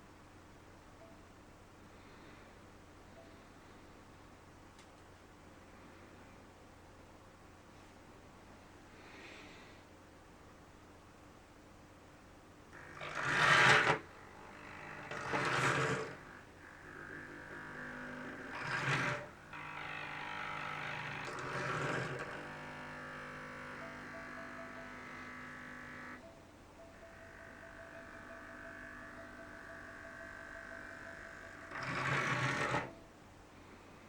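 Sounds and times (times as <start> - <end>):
electric model train motor whining: 12.8 - 26.2, 26.9 - 33.0.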